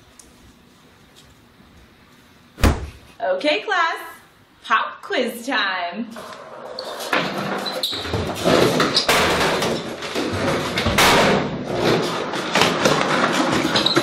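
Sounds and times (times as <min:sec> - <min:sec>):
bangs thuds and clatter: 0:02.6 - 0:03.1, 0:08.2 - 0:13.7.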